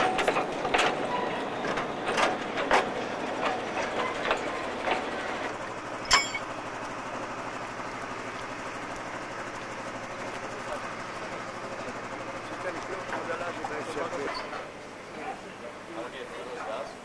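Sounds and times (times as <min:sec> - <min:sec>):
metallic clang with ring: 0:06.1 - 0:06.5.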